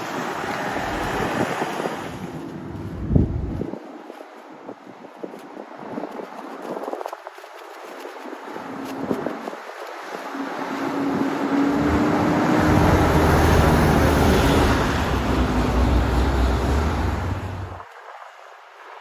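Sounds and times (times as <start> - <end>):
heavy truck driving past: 10.4 - 17.8.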